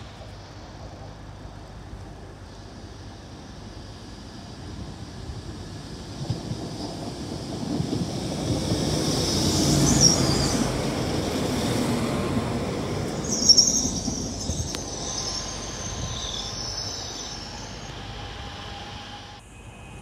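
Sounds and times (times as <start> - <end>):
train wheels rumbling on rails: 0.0 - 20.0
high wheel squeal: 9.0 - 20.0.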